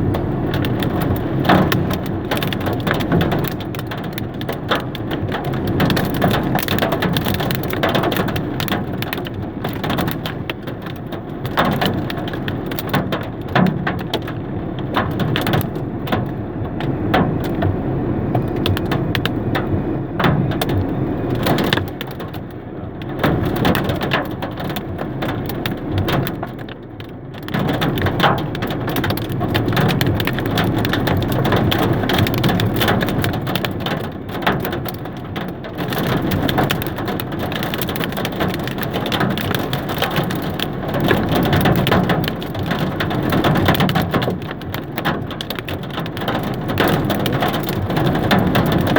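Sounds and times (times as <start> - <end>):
hailstones clattering: 0.2 - 17.7, 27.4 - 48.9
heavy rain rushing: 27.4 - 48.9.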